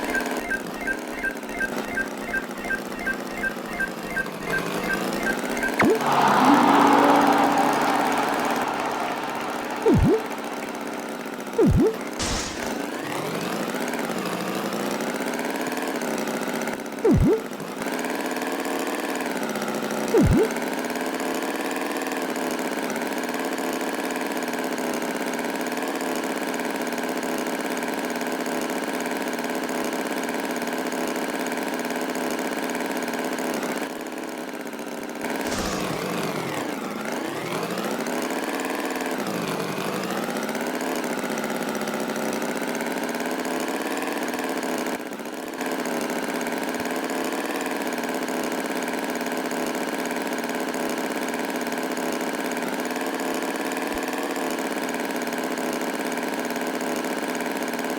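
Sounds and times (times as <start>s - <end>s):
short loud rising tones: 0.0s - 13.1s, 17.1s - 17.5s, 20.2s - 20.6s, 35.5s - 37.0s
tractor engine running: 0.0s - 13.2s, 35.5s - 37.1s.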